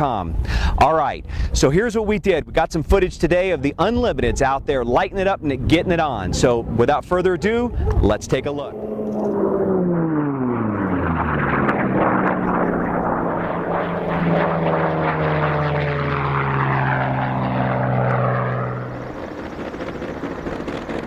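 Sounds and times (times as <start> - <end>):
propeller plane flying past: 6.2 - 21.0.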